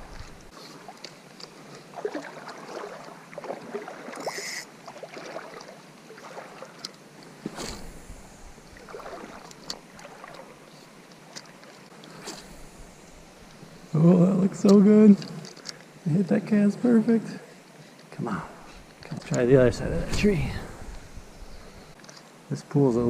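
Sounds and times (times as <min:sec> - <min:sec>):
water sloshing and splashing: 0:00.0 - 0:13.9.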